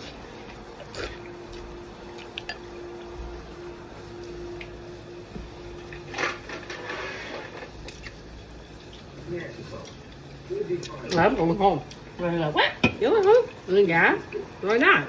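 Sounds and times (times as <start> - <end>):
wet chewing and slurping: 0.0 - 3.5, 6.9 - 12.2
faint steady hum: 0.0 - 15.0.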